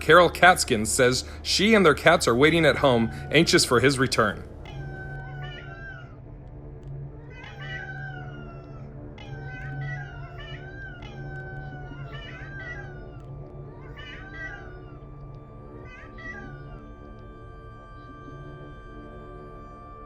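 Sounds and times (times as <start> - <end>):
cats meowing: 1.8 - 6.2, 6.8 - 20.0.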